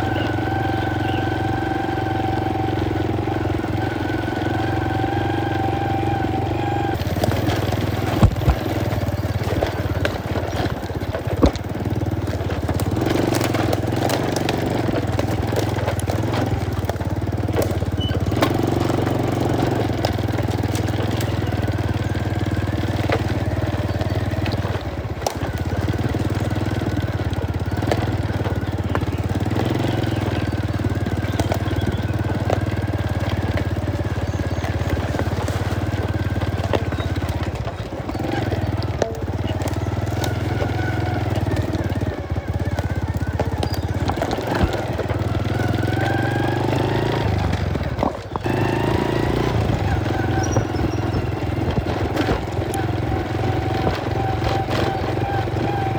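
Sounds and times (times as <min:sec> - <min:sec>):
motorcycle engine running: 0:00.0 - 0:55.9
sharp knocks: 0:08.0 - 0:08.8.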